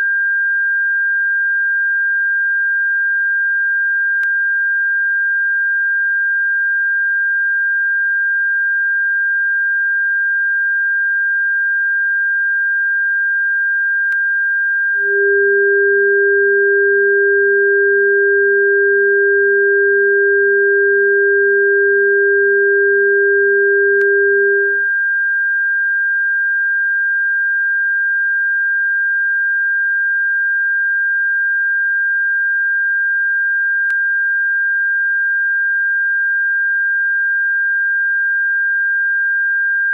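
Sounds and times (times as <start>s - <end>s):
lower steady tone: 14.9s - 25.0s
high-pitched pure tone: 15.0s - 24.9s.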